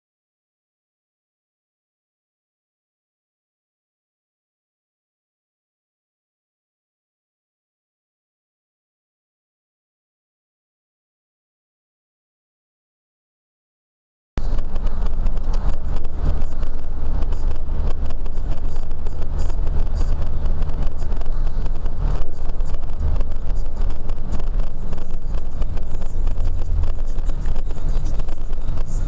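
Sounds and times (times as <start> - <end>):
car engine and road noise: 14.4 - 29.0.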